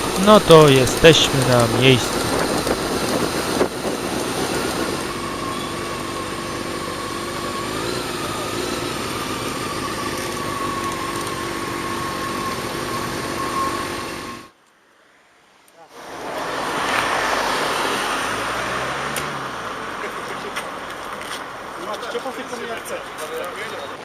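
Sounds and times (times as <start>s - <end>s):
motorcycle engine running: 0.0s - 14.1s.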